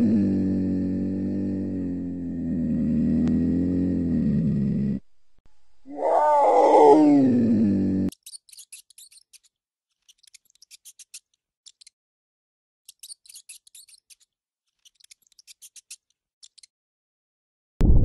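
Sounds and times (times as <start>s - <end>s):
cougar wavering cry: 5.9s - 7.4s.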